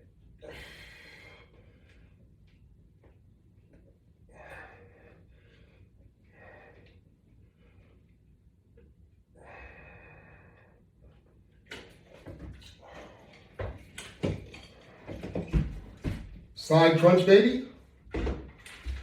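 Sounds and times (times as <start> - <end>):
man breathing out hard: 0.4 - 1.9, 4.3 - 6.9, 9.4 - 10.8.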